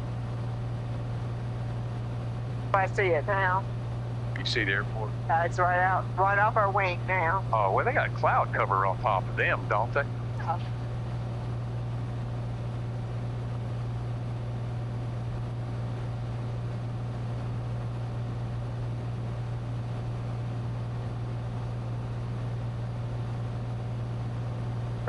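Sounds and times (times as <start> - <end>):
plane engine and propeller drone: 0.0 - 25.0.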